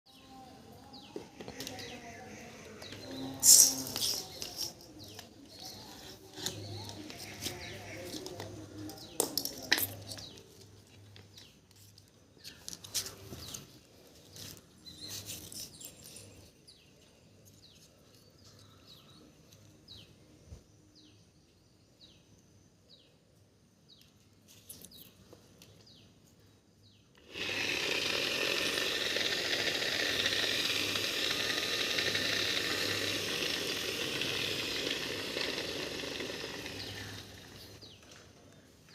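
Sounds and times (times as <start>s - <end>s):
birds chirping: 0.1s - 27.2s, 30.1s - 38.9s
electric grinder running: 2.6s - 9.2s, 27.2s - 38.0s.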